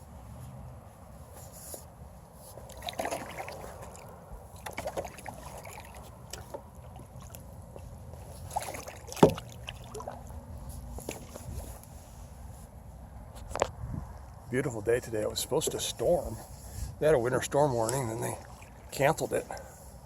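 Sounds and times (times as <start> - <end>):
paddle dipping and splashing: 2.4 - 11.8, 17.8 - 19.7
knocks on kayak: 9.2 - 9.4.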